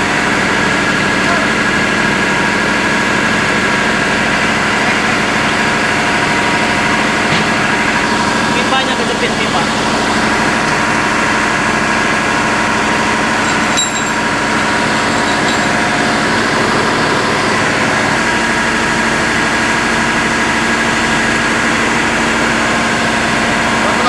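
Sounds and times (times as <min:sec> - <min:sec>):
engine drone: 0:00.0 - 0:24.0
sharp clank: 0:13.4 - 0:14.2.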